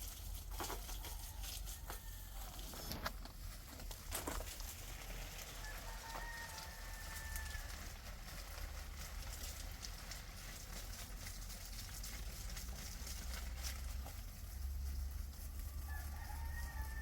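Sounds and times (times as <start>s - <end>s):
faint rooster crowing: 0.6s - 3.1s, 5.3s - 8.2s, 15.4s - 17.0s.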